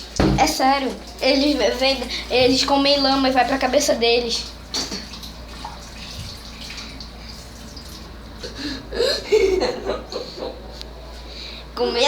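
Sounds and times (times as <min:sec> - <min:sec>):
running water hiss: 0:00.0 - 0:09.1
person's voice: 0:00.4 - 0:04.5.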